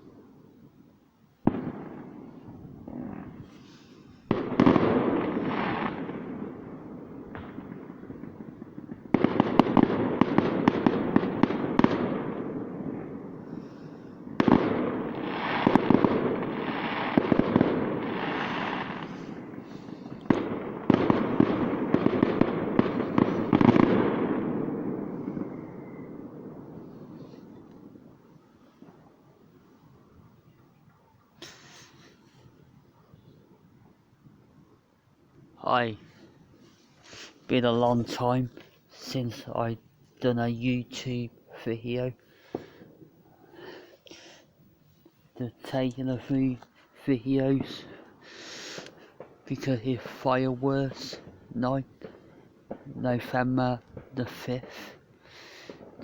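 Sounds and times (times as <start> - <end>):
distant fireworks crackling and banging: 1.4 - 34.0, 35.4 - 56.0.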